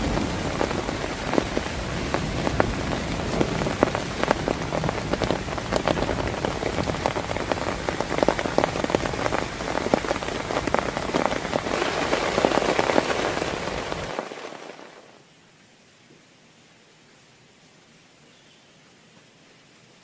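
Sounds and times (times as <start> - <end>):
heavy rain pattering: 0.0 - 15.3.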